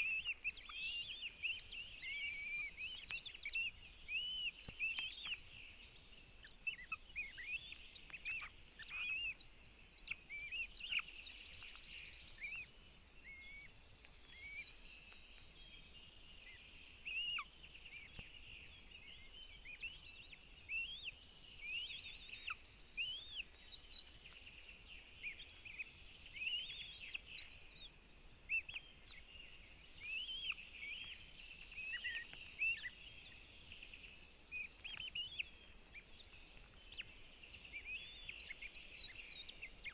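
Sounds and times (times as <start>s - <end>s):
faint steady hiss: 0.0s - 39.9s.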